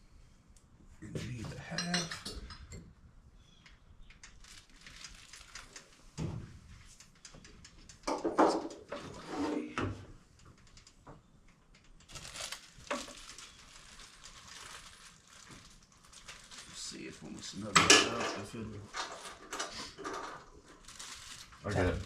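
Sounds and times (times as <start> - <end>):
metal tools clinking: 1.6 - 2.8.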